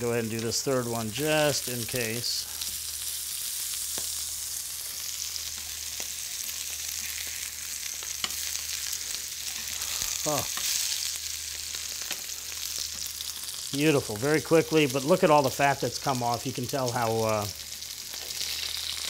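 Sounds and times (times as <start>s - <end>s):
foie gras sizzling in a pan: 0.0s - 19.0s
metal tongs clicking on a pan: 8.0s - 8.5s.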